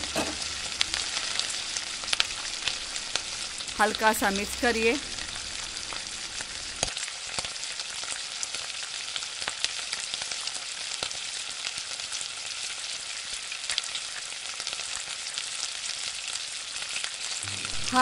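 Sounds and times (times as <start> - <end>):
spatula scraping a pan: 0.0 - 1.5
curry sizzling and bubbling: 0.0 - 18.0.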